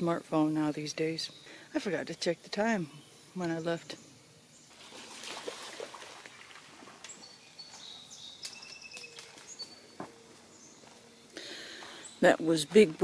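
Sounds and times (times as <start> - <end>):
songbirds chirping: 0.0 - 13.0
thin high bird calls: 6.2 - 12.2.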